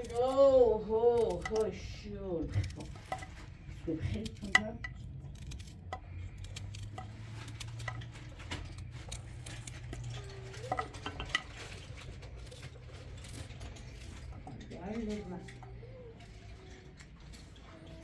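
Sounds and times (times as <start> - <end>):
spoons and dishes clinking: 9.2 - 14.6.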